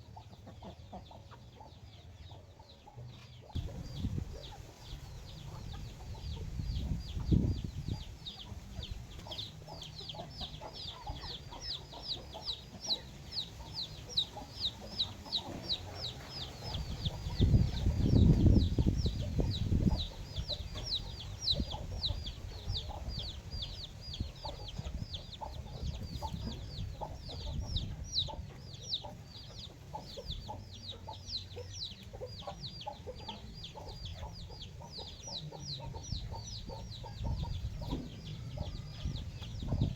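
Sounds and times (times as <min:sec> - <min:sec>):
chickens clucking: 0:00.0 - 0:39.9
chicks peeping: 0:00.0 - 0:39.9.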